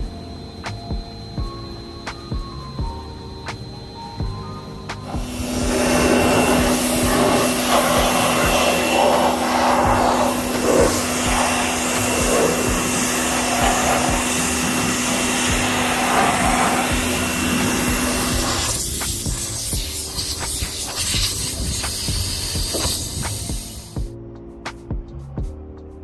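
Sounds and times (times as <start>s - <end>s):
wire wheel power tool running: 4.6s - 24.1s
wire wheel scouring rusty steel: 5.0s - 24.1s.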